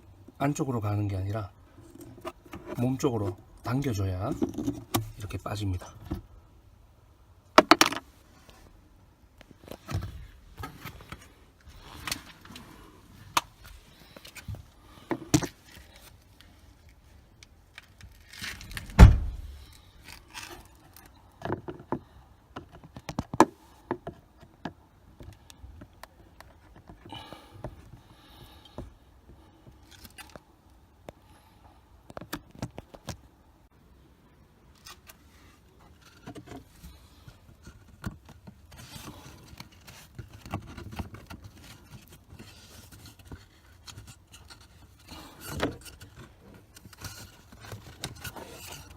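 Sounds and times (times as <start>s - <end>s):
loud thump: 18.9s - 19.6s
plastic clicks and scrapes: 35.8s - 48.9s.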